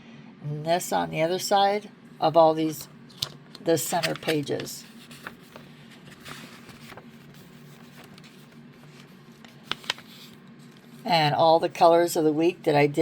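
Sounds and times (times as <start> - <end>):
low steady hum: 0.0 - 13.0
paper pages rustling: 3.1 - 11.0.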